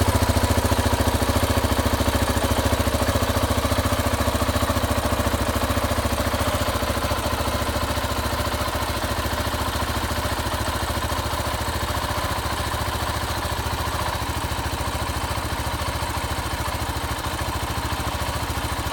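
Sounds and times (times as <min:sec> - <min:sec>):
motorcycle engine idling: 0:00.0 - 0:18.9.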